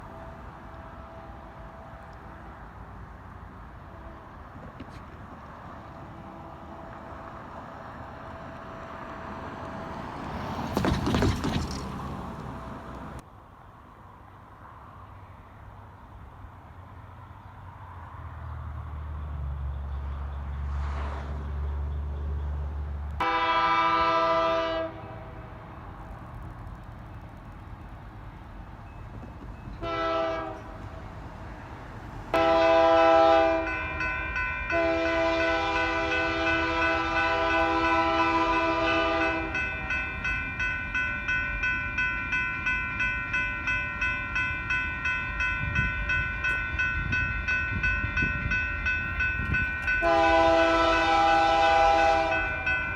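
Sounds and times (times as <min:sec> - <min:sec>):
train air horn blasts: 0:00.0 - 0:02.4, 0:03.8 - 0:04.7, 0:23.2 - 0:25.6, 0:29.8 - 0:30.9, 0:32.3 - 0:34.0, 0:34.7 - 0:40.0, 0:49.9 - 0:52.9
diesel locomotive drone: 0:00.0 - 0:52.9.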